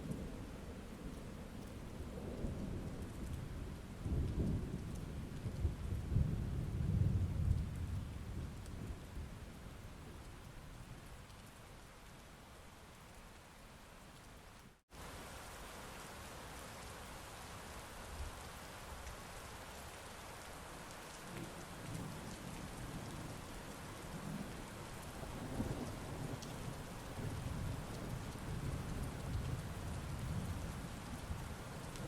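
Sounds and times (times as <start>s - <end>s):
heavy rain: 0.0s - 13.8s, 14.4s - 32.0s
low thunder rumbling: 1.9s - 9.5s.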